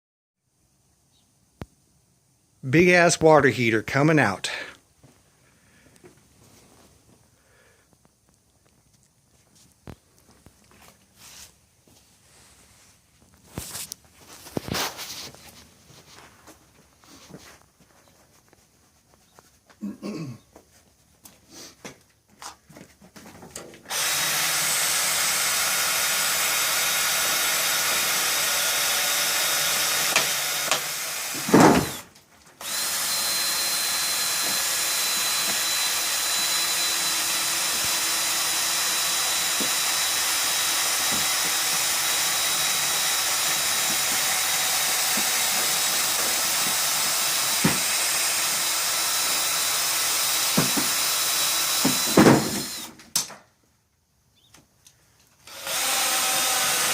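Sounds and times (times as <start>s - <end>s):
power tool motor running: 23.9s - 53.0s, 55.4s - 56.9s.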